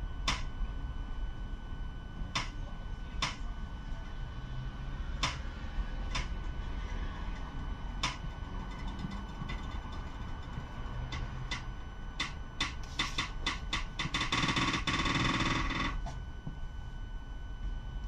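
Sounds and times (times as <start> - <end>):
tram low rumble: 0.0 - 14.4
thin electrical whine: 0.0 - 18.0
sharp clicks: 6.1 - 6.4.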